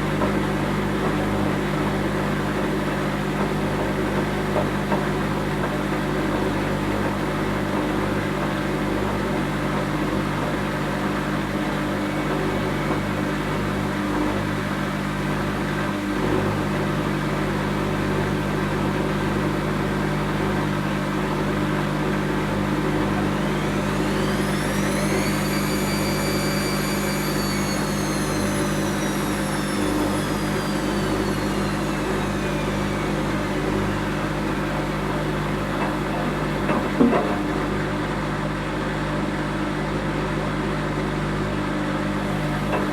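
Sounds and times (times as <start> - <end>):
washing machine drum motor whine: 0.0 - 42.9
washing machine humming: 10.4 - 39.3.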